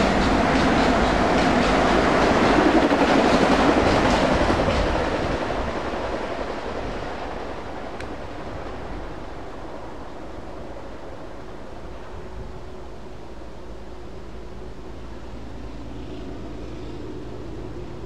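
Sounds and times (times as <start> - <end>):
train wheels clicking on rails: 0.0 - 9.1.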